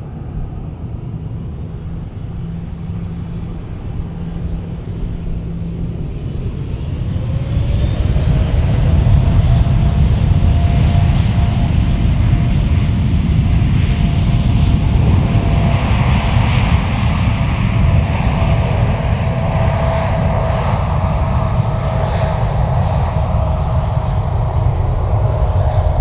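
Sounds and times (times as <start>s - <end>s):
jet engines rumbling and whining: 0.0s - 26.0s.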